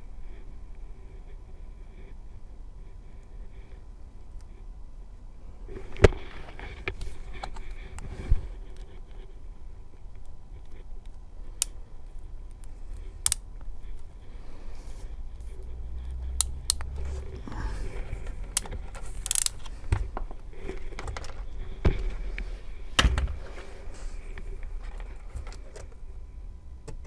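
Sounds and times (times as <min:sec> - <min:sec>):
hand tools clicking and snipping wire: 0:13.2 - 0:13.4, 0:16.2 - 0:21.4.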